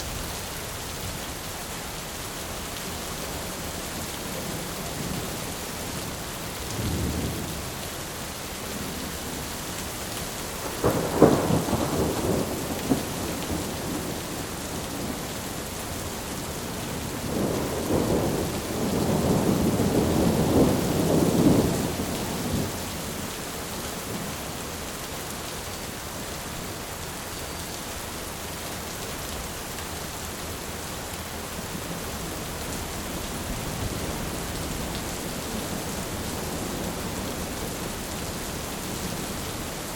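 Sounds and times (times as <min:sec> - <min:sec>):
rain hiss: 0:00.0 - 0:39.9
thunder rumbling: 0:10.6 - 0:22.8, 0:33.3 - 0:38.2.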